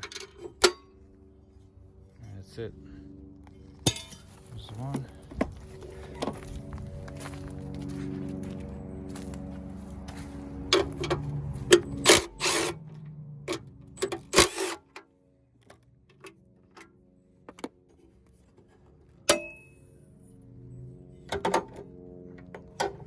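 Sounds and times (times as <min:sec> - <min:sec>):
ringing metal clink: 0:19.3 - 0:19.8.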